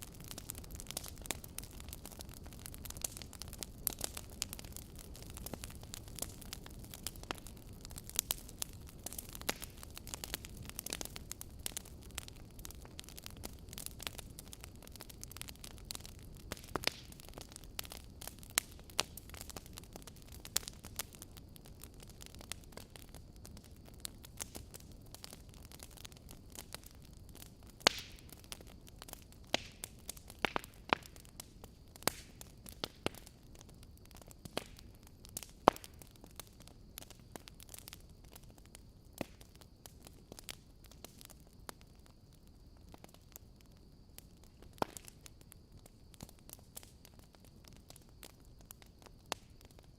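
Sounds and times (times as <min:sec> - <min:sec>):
fire crackling in a fireplace: 0:00.0 - 0:49.9.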